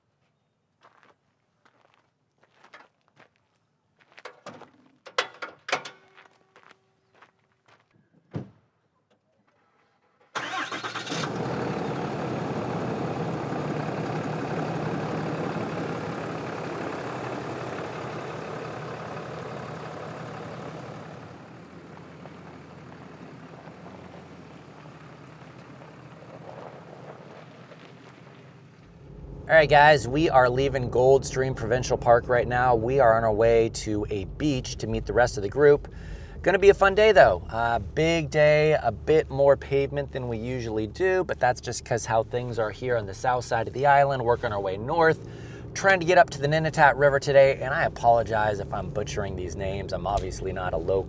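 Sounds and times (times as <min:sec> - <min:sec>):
clicks and knocks: 0:04.2 - 0:06.2
vehicle engine starting and running: 0:10.2 - 0:51.0.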